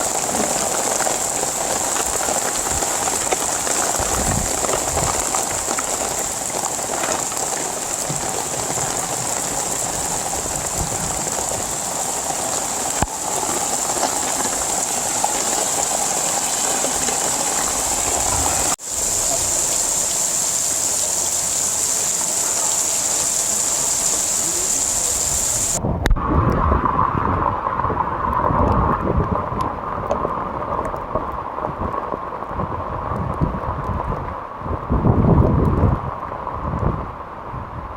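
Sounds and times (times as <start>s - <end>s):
heavy rain falling: 0.0s - 25.8s.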